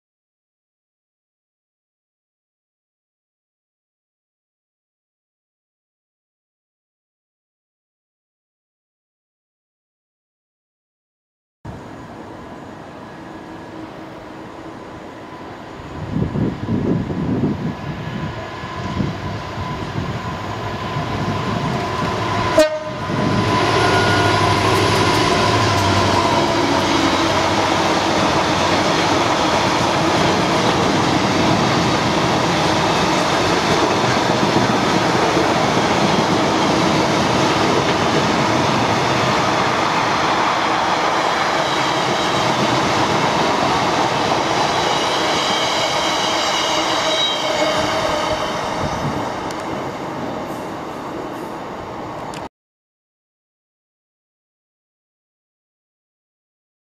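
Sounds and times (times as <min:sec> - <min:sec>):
diesel locomotive engine passing: 0:11.7 - 0:52.4
faint high wheel squeal: 0:18.6 - 0:21.2, 0:41.5 - 0:42.7, 0:44.6 - 0:49.6.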